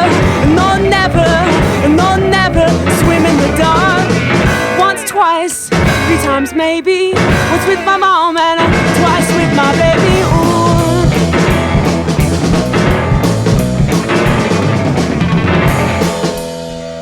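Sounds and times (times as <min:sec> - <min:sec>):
wavering keyboard or vocal line: 0:00.0 - 0:13.3
indie rock band playing: 0:00.0 - 0:17.0.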